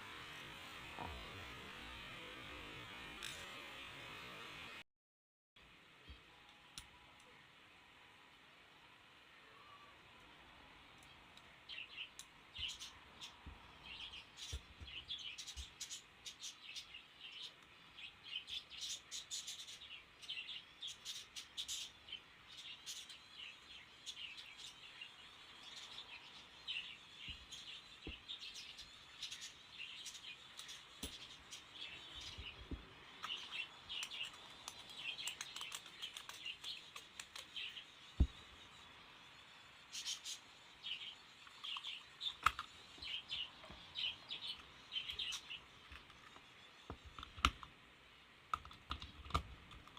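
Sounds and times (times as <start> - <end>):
small birds chirping: 9.3 - 49.9.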